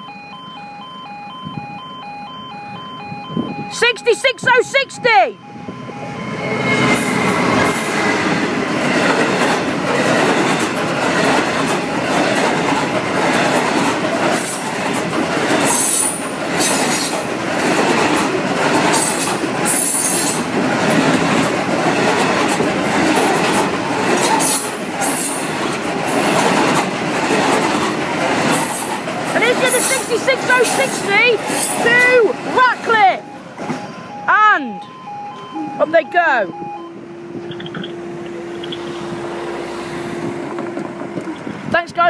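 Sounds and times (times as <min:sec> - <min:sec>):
freight train passing: 0:00.0 - 0:42.0
high wheel squeals: 0:05.5 - 0:08.5, 0:28.5 - 0:34.2, 0:37.3 - 0:40.5
wagon wheels clattering on rails: 0:07.2 - 0:33.0.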